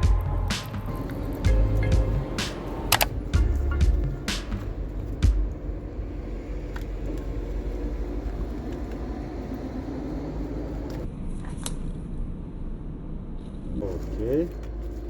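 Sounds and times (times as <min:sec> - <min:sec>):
low mechanical rumble: 0:00.0 - 0:11.2.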